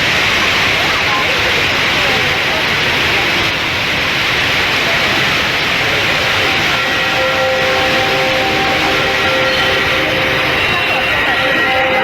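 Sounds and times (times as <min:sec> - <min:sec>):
indoor waterfall rushing: 0:00.0 - 0:12.0
held musical notes: 0:06.5 - 0:12.0.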